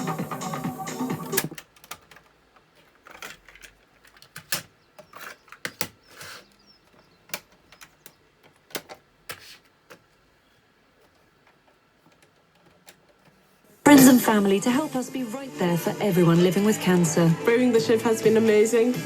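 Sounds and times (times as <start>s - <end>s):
switches and buttons clicking: 0.0s - 2.3s.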